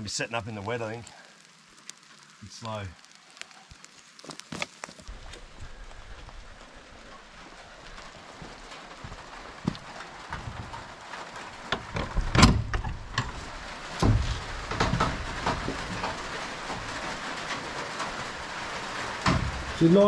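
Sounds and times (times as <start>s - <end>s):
steady rain falling: 0.0s - 20.0s
knocks and bumps: 8.4s - 19.9s.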